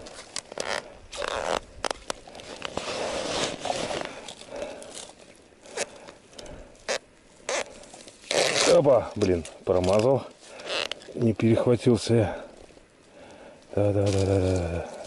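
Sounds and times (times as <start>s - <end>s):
clothing rustling: 0.0s - 5.9s
ice crunching: 0.0s - 6.1s, 6.9s - 11.6s.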